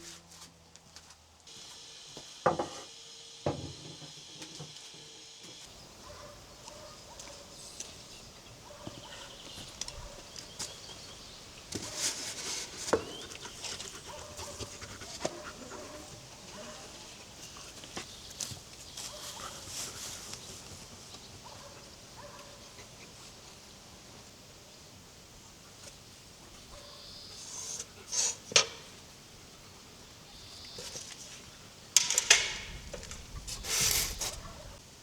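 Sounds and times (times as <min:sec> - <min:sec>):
poultry calling: 0:05.9 - 0:11.6.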